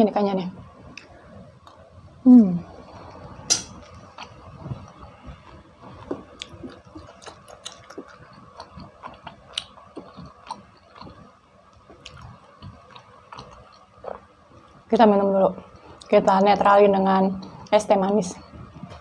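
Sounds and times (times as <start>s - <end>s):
person chewing with wet mouth smacks: 3.8s - 14.3s.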